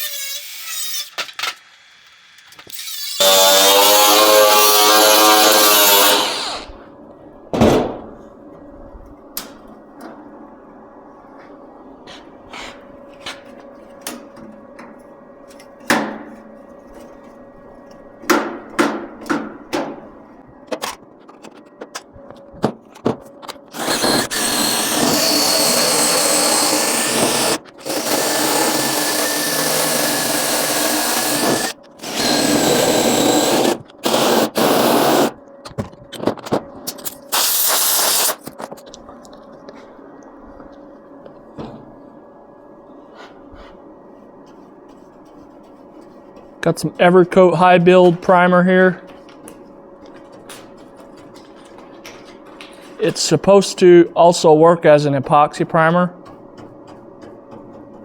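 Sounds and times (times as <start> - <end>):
power tool running: 1.0 - 6.8, 23.7 - 35.4.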